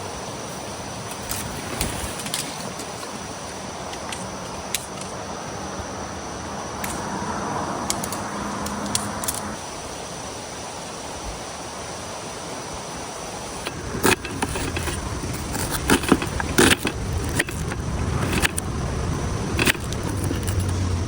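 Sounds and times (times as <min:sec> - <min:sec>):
low background rumble: 0:13.6 - 0:21.0
sharp metallic clinks and knocks: 0:13.6 - 0:21.0.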